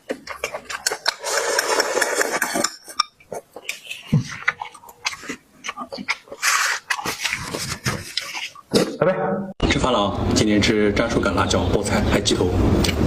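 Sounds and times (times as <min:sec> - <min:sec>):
chewing and mouth clicks: 0:00.0 - 0:08.7.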